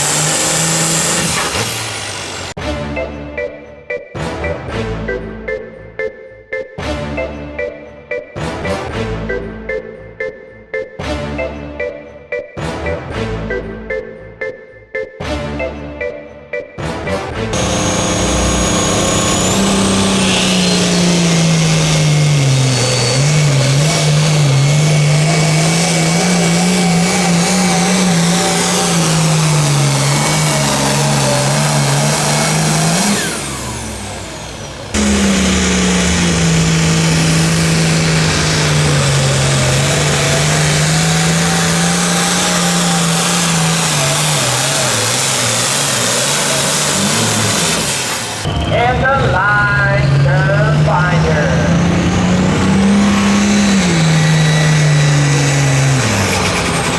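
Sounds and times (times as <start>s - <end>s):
engine at full throttle under load: 0.0s - 2.6s, 17.5s - 56.9s.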